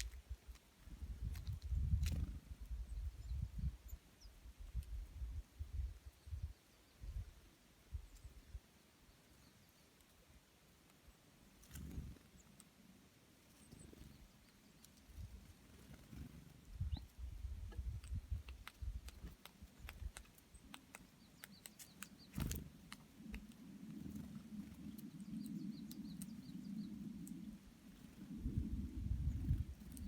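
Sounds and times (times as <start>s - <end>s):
faint high bird chirps: 24.0s - 28.2s.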